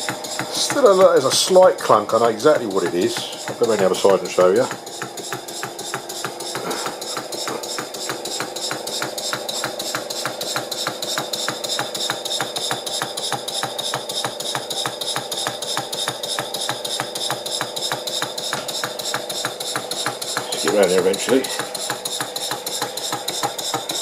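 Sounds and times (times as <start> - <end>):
model steam engine knocking: 0.0 - 24.0.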